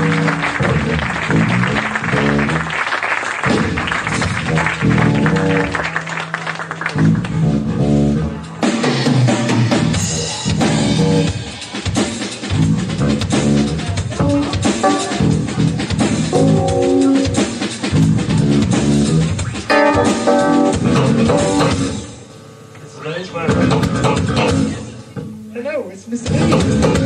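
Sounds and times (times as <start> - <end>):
drum kit playing: 0.0 - 22.7, 23.4 - 27.0
guitar phrases: 14.2 - 17.5, 19.7 - 25.7.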